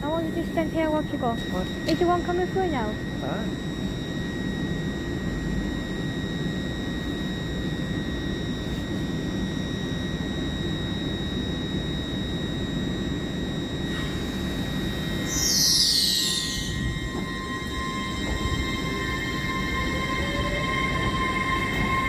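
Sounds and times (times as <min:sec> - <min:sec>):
passenger train rumbling: 0:00.0 - 0:03.7, 0:13.8 - 0:22.0
high-pitched whine: 0:00.0 - 0:22.0.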